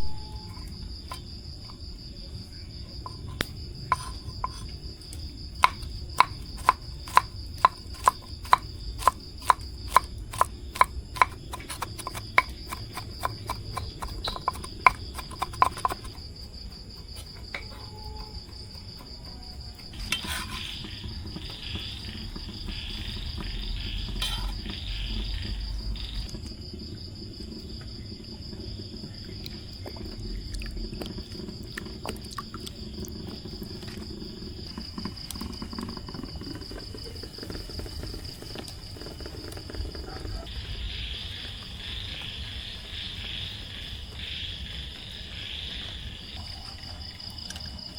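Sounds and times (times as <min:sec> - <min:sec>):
crickets chirring: 0:00.0 - 0:47.9
scratchy rustling: 0:19.9 - 0:20.8.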